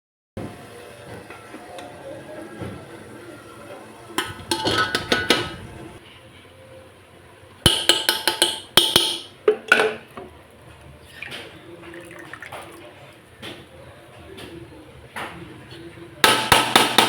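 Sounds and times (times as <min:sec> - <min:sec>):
utensils and dishes clattering: 0:04.1 - 0:06.0, 0:07.7 - 0:10.2.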